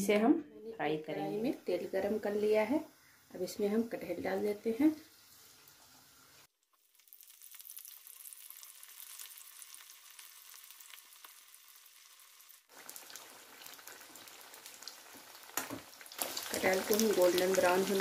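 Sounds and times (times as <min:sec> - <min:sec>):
deep-frying sizzle with crackles: 0:01.2 - 0:18.0.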